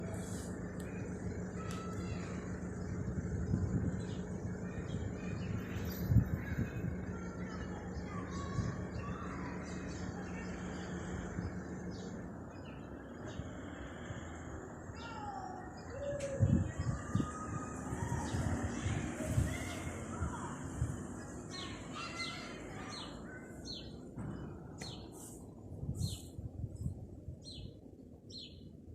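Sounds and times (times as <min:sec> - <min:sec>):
birds chirping: 0:00.0 - 0:28.7
low hum and rumble: 0:00.0 - 0:28.9
low thump: 0:24.1 - 0:24.7.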